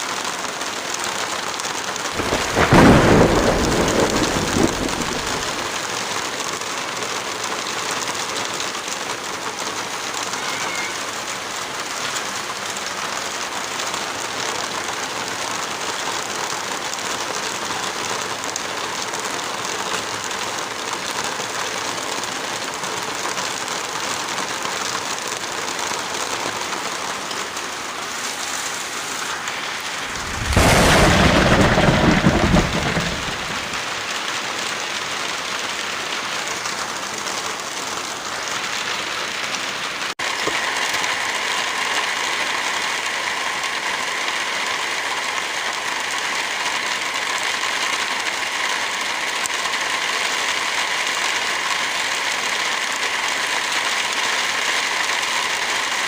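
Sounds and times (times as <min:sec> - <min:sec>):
heavy rain: 0:00.0 - 0:56.0
thunder clap rumbling: 0:02.2 - 0:05.8, 0:29.3 - 0:34.2.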